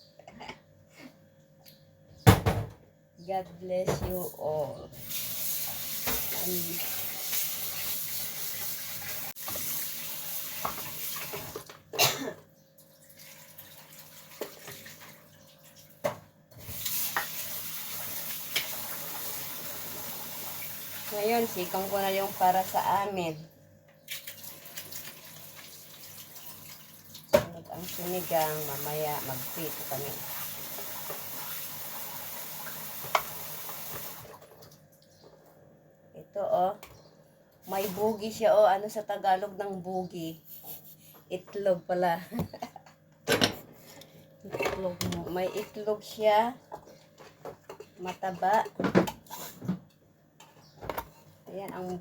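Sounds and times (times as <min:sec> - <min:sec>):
tap water running: 0:05.0 - 0:11.8, 0:12.9 - 0:23.0, 0:24.1 - 0:34.8.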